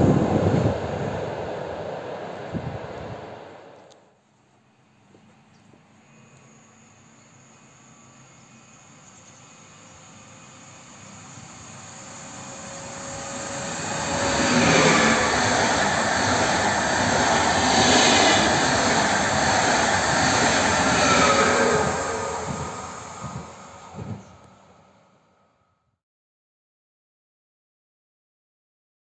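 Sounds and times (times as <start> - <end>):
train wheels rushing on rails: 0.0 - 4.0, 8.0 - 25.0.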